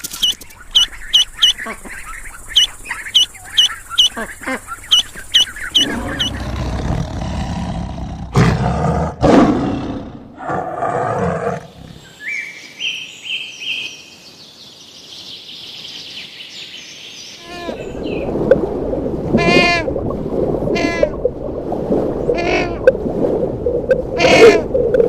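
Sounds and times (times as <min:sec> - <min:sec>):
large animal roaring: 0:05.8 - 0:12.0.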